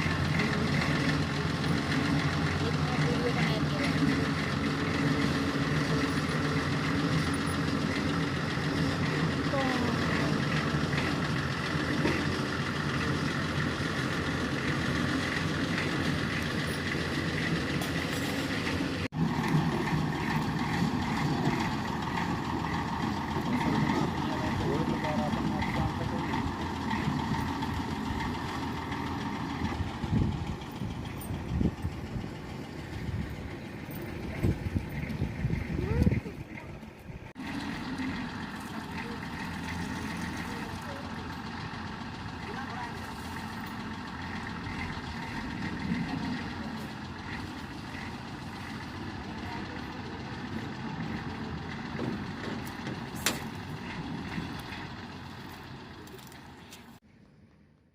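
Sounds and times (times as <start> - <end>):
road roller diesel engine running: 0.0 - 57.9.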